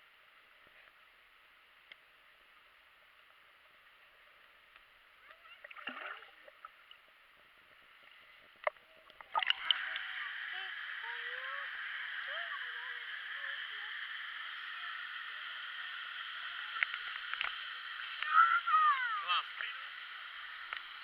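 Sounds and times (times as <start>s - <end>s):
faint steady water rush: 0.0s - 21.0s
water bubbling and sloshing: 5.3s - 18.3s
water splash: 5.5s - 6.8s, 9.2s - 10.4s.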